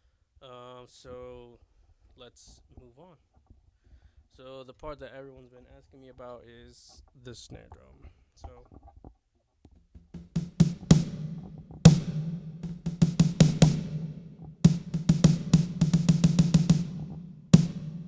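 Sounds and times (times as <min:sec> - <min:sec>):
electronic snare drum hits: 0:10.2 - 0:18.0.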